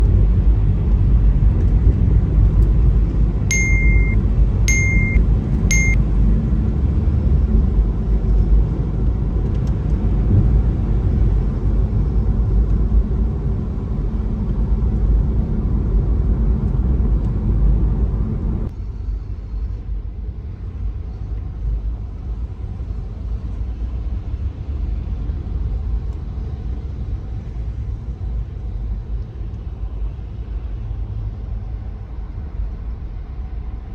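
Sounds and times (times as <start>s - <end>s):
car rumble on road: 0.0s - 33.9s
short high beeps: 3.5s - 6.0s.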